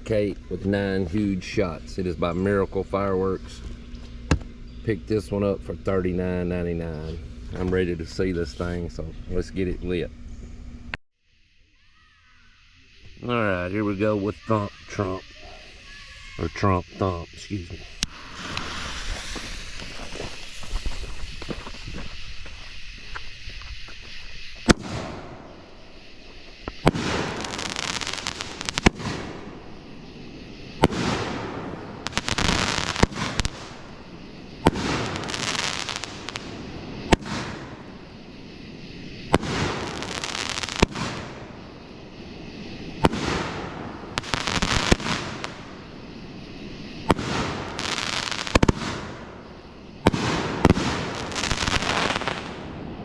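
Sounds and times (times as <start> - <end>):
firework shots banging and crackling: 3.6 - 4.6, 17.9 - 38.4, 39.0 - 53.0.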